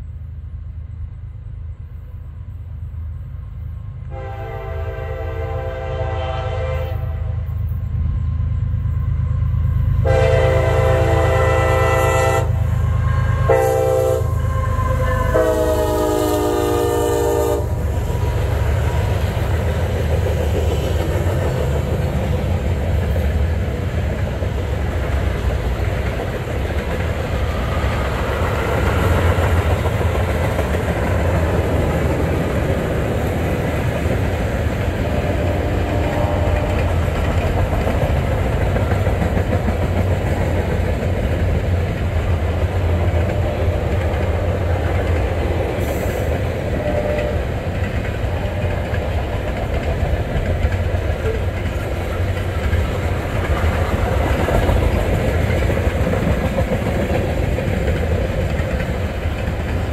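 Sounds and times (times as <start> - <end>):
train rumbling past: 0.0 - 59.9
train air horn: 4.1 - 7.7, 10.0 - 18.0, 35.1 - 37.0, 45.8 - 47.6
train wheels clattering: 14.8 - 59.9.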